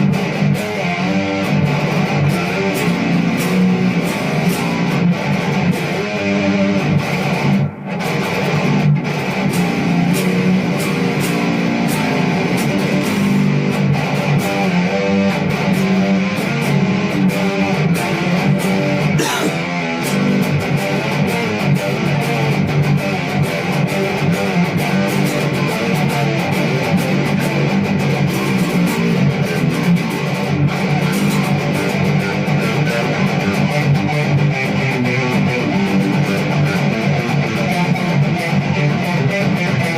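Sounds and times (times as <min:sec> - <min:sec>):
guitar-driven music: 0:00.0 - 0:39.9.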